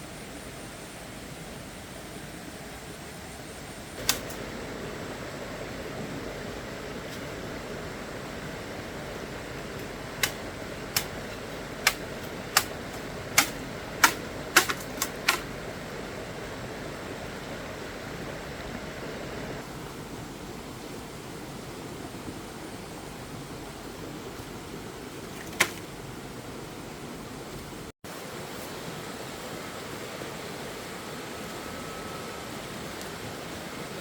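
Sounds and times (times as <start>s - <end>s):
steady hiss: 0.0s - 34.0s
sharp clicks or knocks: 4.0s - 4.4s, 9.8s - 15.5s.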